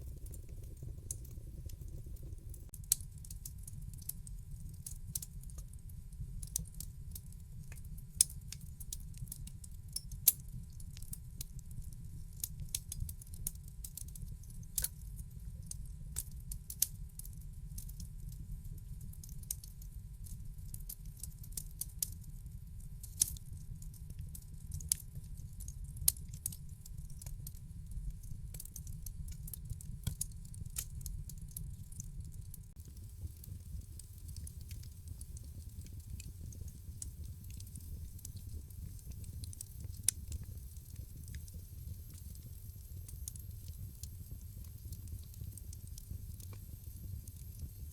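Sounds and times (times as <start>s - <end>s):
wood fire crackling: 0.0s - 5.6s, 25.9s - 47.9s.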